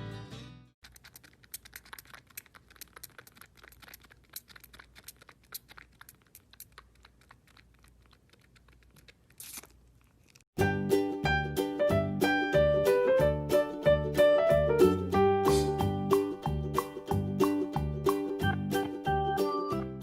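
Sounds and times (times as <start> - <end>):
guitar music: 10.6 - 20.0.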